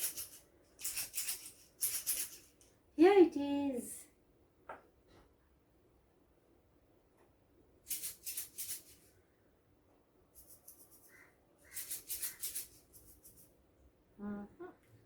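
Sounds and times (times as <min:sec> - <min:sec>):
shaken cylinders rattling: 0:00.0 - 0:02.6.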